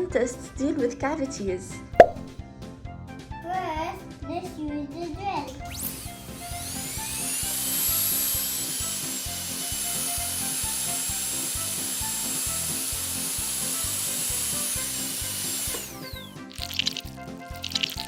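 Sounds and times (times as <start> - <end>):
toy drill motor whining: 5.6 - 18.0.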